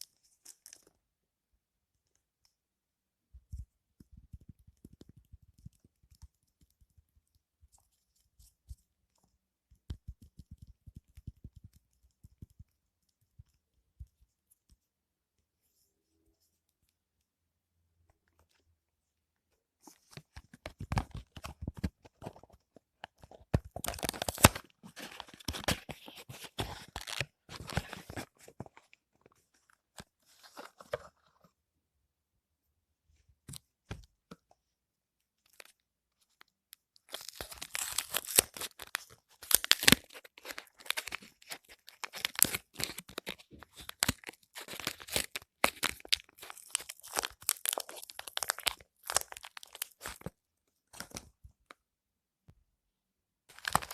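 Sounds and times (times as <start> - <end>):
packaging tearing and crinkling: 23.8 - 28.2, 37.1 - 50.3, 53.5 - 53.9.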